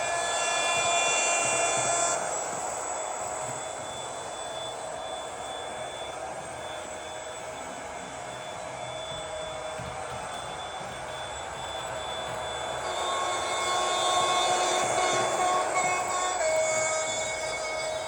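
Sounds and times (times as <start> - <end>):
train horn: 0.0 - 5.7, 10.8 - 18.0
model train diesel engine sound: 0.0 - 18.0
thin high whine: 0.0 - 18.0.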